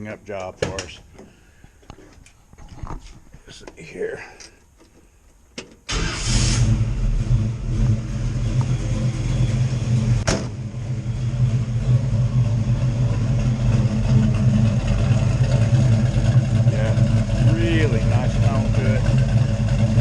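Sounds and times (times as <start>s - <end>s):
engine starting and idling: 5.9s - 10.7s.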